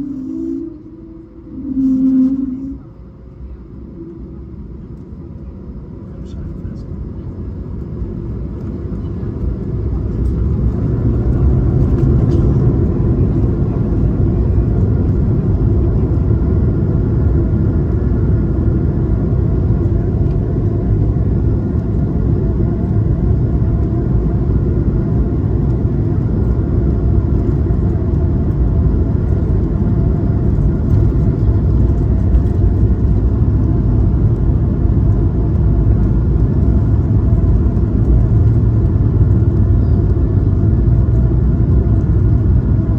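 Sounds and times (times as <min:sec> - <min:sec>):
jet engines rumbling in cabin: 0:00.0 - 0:42.9.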